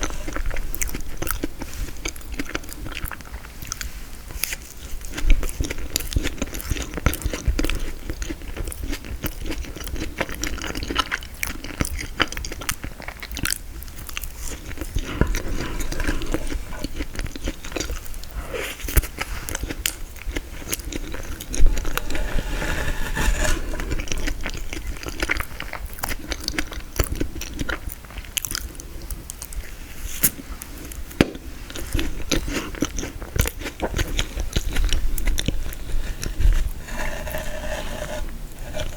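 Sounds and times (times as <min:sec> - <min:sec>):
crunching frozen cake: 0:00.0 - 0:38.9
wet mouth sounds: 0:11.7 - 0:27.9.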